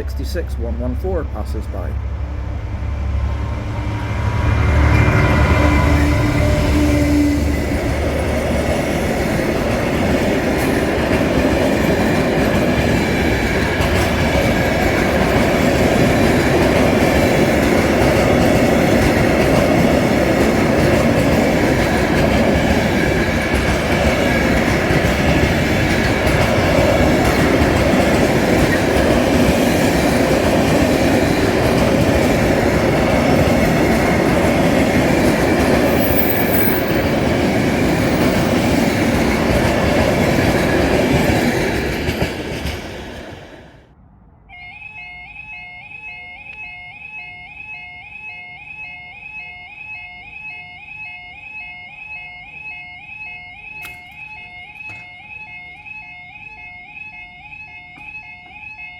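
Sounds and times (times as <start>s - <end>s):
freight train wheels rumbling: 0.0s - 44.0s.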